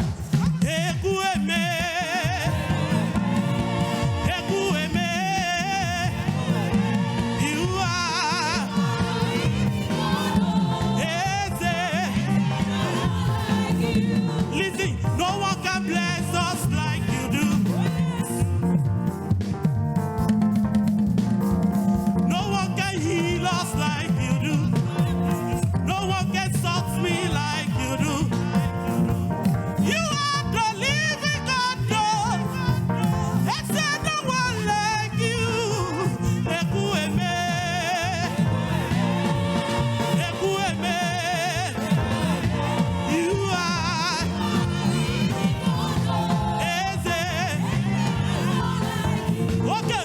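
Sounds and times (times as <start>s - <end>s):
gospel church band music: 0.0s - 50.0s
person singing with vibrato: 0.4s - 18.7s, 29.8s - 50.0s.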